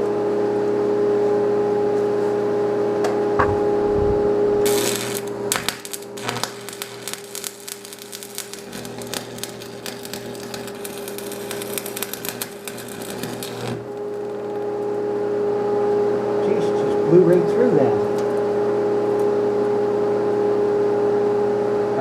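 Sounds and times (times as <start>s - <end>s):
welding machine hum: 3.4s - 20.7s
arc welding crackling: 4.0s - 15.2s, 16.4s - 18.5s.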